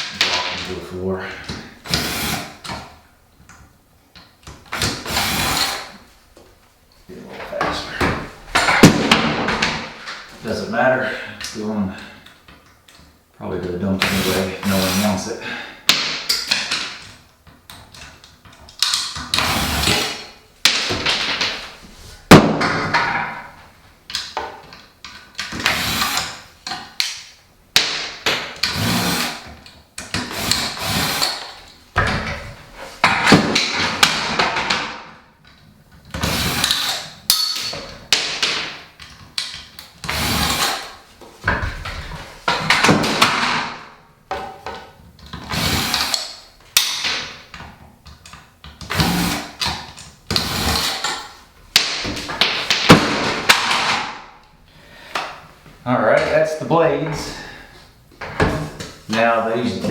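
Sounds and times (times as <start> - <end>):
cordless drill driving screws: 1.9 - 2.6, 4.8 - 5.9, 14.0 - 15.2, 19.3 - 20.3, 25.6 - 26.4, 28.6 - 29.5, 30.2 - 31.6, 36.2 - 37.2, 40.0 - 41.0, 45.4 - 46.4, 48.8 - 51.3.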